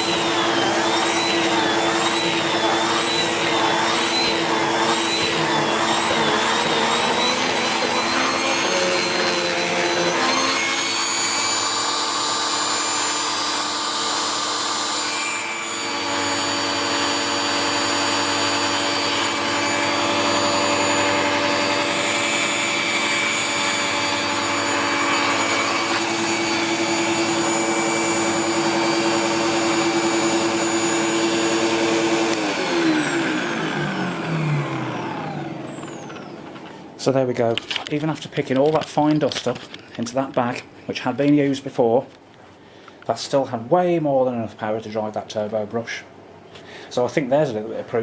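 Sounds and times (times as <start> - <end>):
vacuum motor whine winding down: 0.0 - 15.0, 15.6 - 37.0
vacuum cleaner running: 0.0 - 37.0.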